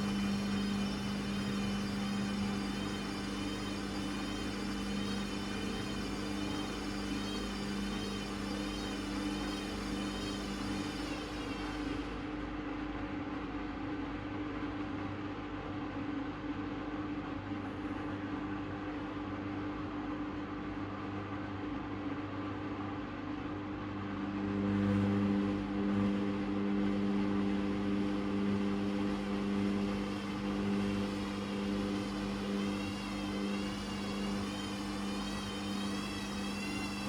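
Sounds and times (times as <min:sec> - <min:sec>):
high wavering whine: 0:00.0 - 0:12.3, 0:24.0 - 0:37.0
louder motor hum: 0:00.0 - 0:12.3, 0:23.9 - 0:37.0
washing machine hum: 0:00.0 - 0:37.0.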